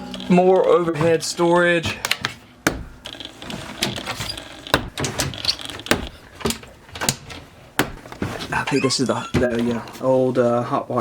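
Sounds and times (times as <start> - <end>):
cabinet doors clicking and knocking: 4.7 - 8.4.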